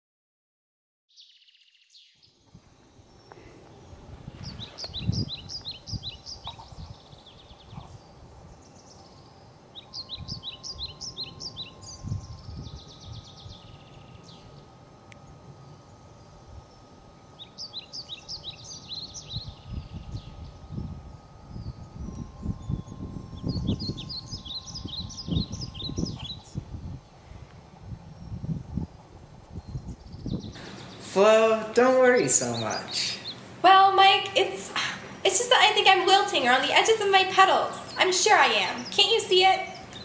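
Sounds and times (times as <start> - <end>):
songbird chirping: 1.1 - 27.6, 29.6 - 40.0
low gusty rumble: 2.5 - 8.7, 10.0 - 17.3, 18.2 - 31.2.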